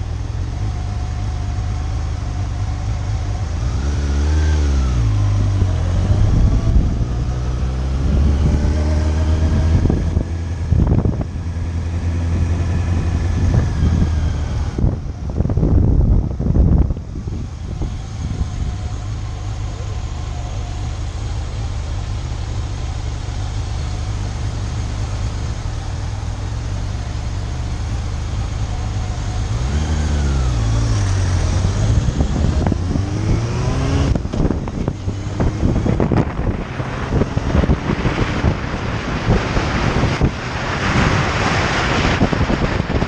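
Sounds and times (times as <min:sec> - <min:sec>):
motorcycle engine running: 0:00.0 - 0:43.0
wind rush: 0:05.1 - 0:19.0, 0:29.6 - 0:43.0
wind buffeting microphone: 0:12.2 - 0:19.0, 0:30.8 - 0:43.0.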